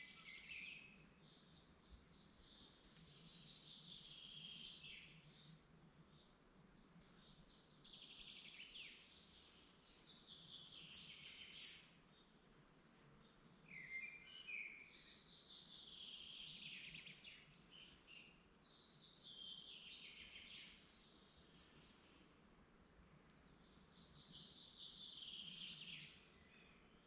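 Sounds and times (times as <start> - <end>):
songbirds singing trilled phrases: 0.0 - 12.4, 13.5 - 22.2, 23.4 - 27.0.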